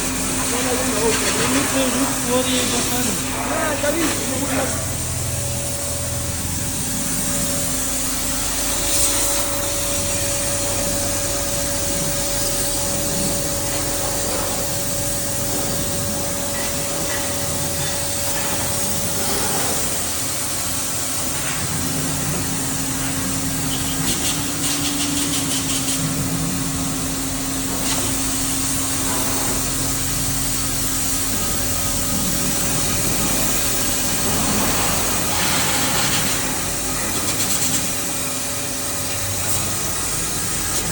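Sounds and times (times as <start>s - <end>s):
lathe machine hum: 0.0s - 23.8s.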